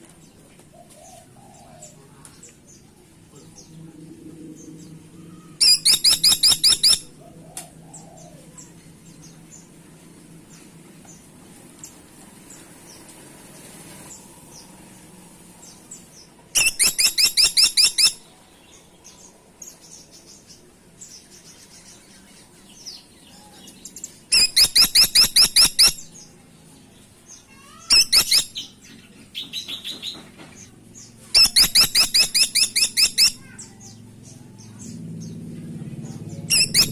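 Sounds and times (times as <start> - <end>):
woodpecker rapid high-pitched calls: 5.6 - 7.1, 16.6 - 18.3, 24.3 - 26.1, 27.5 - 28.8, 31.3 - 34.0, 36.5 - 36.9
faint bird chirps: 16.6 - 18.9, 27.5 - 28.8, 31.3 - 35.0, 36.4 - 36.9.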